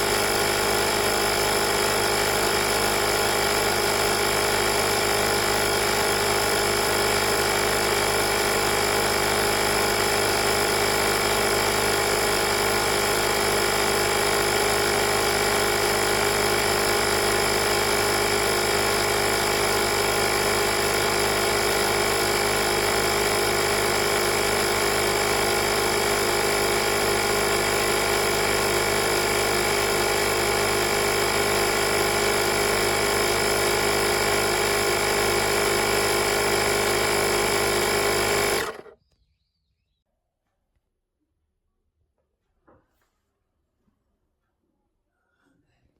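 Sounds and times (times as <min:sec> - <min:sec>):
air compressor running: 0:00.0 - 0:39.0.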